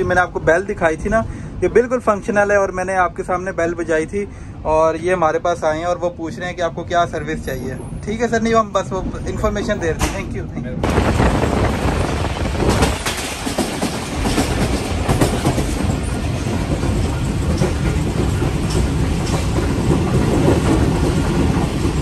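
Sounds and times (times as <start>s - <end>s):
train wheels rumbling on rails: 4.8s - 22.0s.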